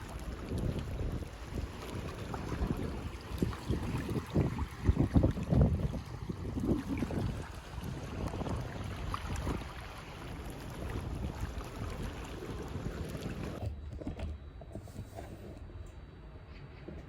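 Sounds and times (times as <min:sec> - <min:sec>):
wind buffeting microphone: 0:00.0 - 0:13.6.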